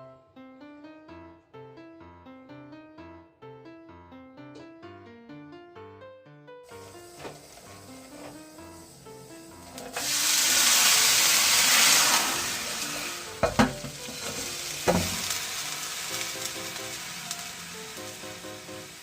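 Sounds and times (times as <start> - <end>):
sizzling on griddle pan: 6.7 - 19.0.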